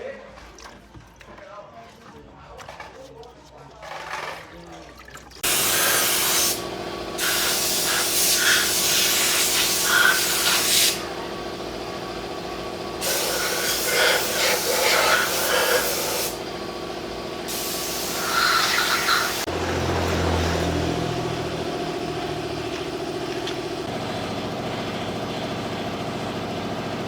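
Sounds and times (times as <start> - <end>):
motor hum: 5.4 - 27.0
pressurised spray hissing: 5.5 - 6.6, 7.2 - 11.1, 13.0 - 16.5, 17.4 - 19.5.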